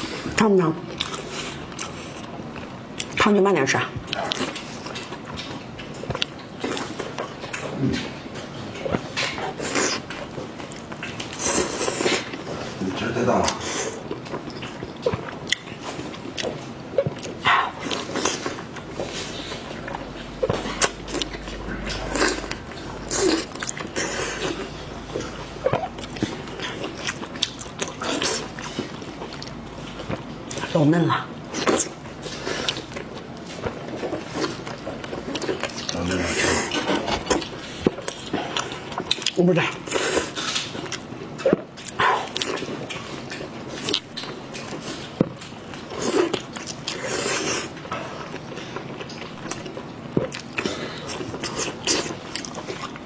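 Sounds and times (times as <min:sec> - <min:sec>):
wet chewing and slurping: 0:00.0 - 0:03.2, 0:04.0 - 0:53.0
person biting and chewing: 0:15.0 - 0:30.3.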